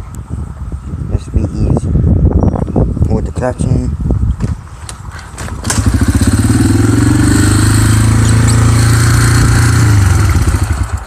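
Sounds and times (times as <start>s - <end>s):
dirt bike engine running: 5.4s - 11.0s.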